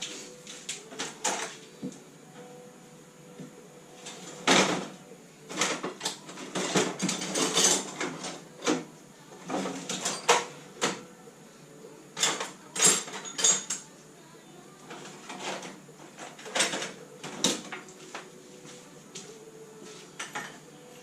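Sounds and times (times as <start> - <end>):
clatter of hand tools and parts: 5.5 - 8.8, 12.2 - 13.9, 14.9 - 17.9.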